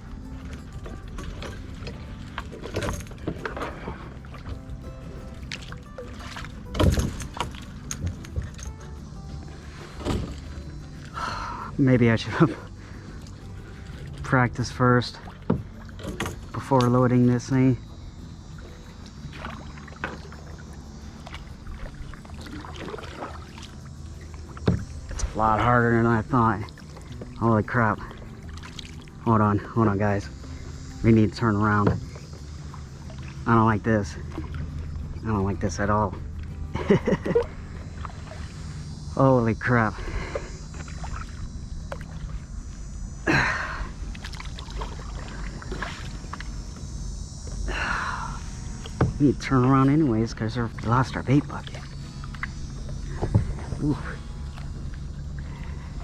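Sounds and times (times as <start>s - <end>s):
low rumble: 0.0s - 56.0s
paddle splashing in water: 0.2s - 17.0s, 18.5s - 29.4s, 43.5s - 46.5s, 50.7s - 56.0s.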